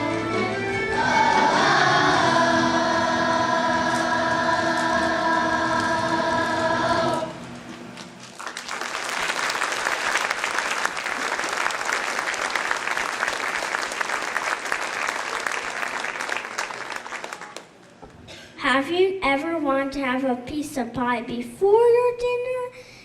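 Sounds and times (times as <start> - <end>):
children's choir singing: 0.0 - 7.4
audience applause: 8.2 - 17.8.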